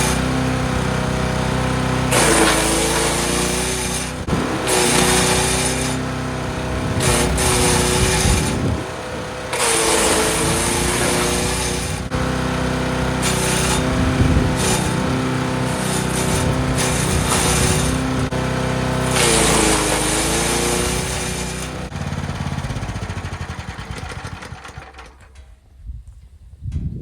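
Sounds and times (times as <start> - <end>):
wood chipper engine running: 0.0 - 25.6
branches being chipped: 2.1 - 6.1, 6.9 - 8.8, 19.0 - 21.9.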